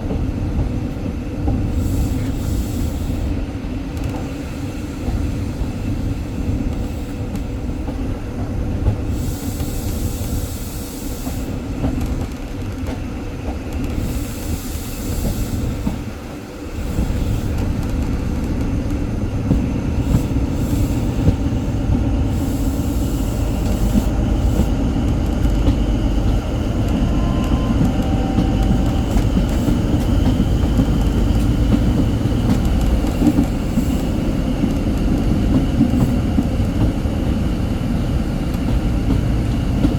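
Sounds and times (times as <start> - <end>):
train wheels and engine rumble: 0.0 - 39.9.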